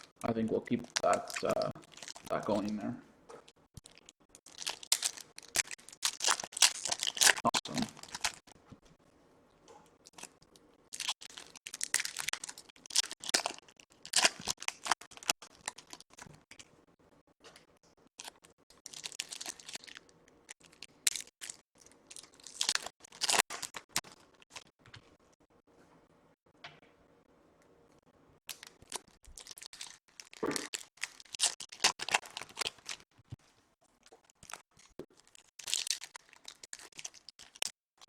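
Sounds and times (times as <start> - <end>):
card wrappers crinkling and tearing: 0.8 - 2.8, 3.8 - 8.6, 10.1 - 16.7, 18.2 - 24.7, 28.5 - 33.1, 34.1 - 37.9.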